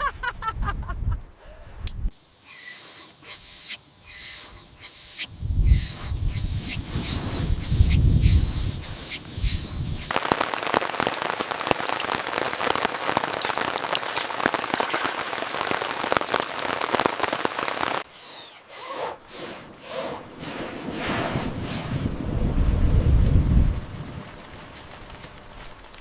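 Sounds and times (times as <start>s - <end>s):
heavy rain falling: 10.0s - 18.1s, 19.7s - 26.0s.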